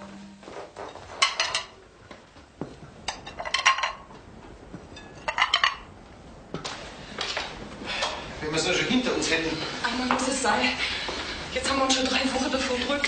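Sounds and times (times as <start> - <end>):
dishes and cutlery clinking: 0.6 - 1.8, 3.0 - 4.1, 4.8 - 5.9.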